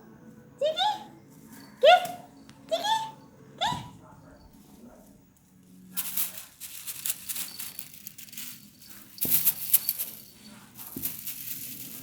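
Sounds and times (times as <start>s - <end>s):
cats rustling and scuffling: 3.8s - 12.0s.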